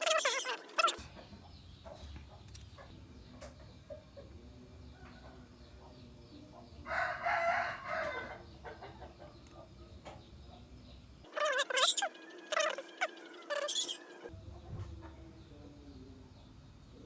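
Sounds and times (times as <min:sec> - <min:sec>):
rooster crowing: 0:06.9 - 0:08.4.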